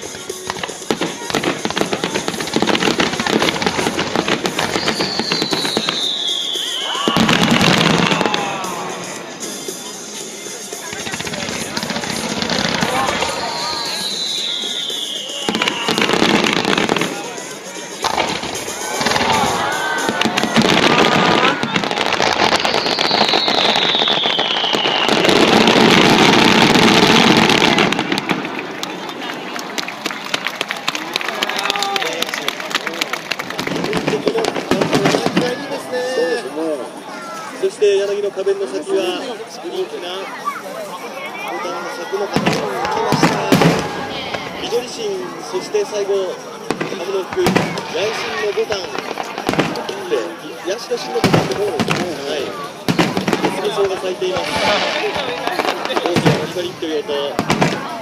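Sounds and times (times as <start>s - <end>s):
firework bangs: 0.0s - 36.5s, 42.2s - 45.7s, 46.5s - 58.0s
fireworks crackling pops: 0.1s - 9.2s, 10.8s - 36.3s, 41.7s - 44.9s, 46.6s - 58.0s
firework whistle sliding down: 4.7s - 8.4s, 13.3s - 16.1s, 22.5s - 25.3s.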